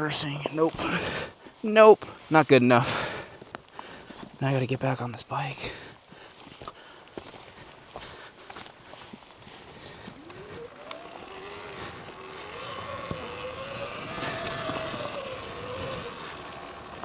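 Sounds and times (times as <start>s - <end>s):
electric dirt bike motor whine: 0.0s - 1.3s, 8.7s - 17.0s
trail noise: 0.0s - 17.0s.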